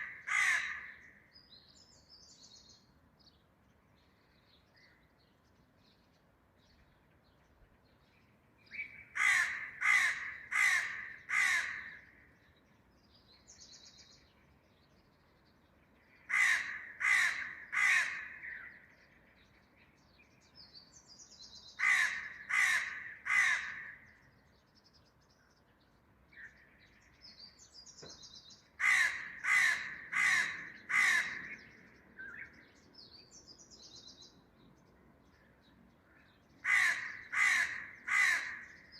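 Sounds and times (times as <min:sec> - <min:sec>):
crow cawing: 0:00.0 - 0:01.2, 0:09.1 - 0:12.3, 0:16.2 - 0:18.8, 0:21.8 - 0:24.2, 0:28.8 - 0:31.6, 0:36.6 - 0:38.8
small birds chirping: 0:00.0 - 0:38.9.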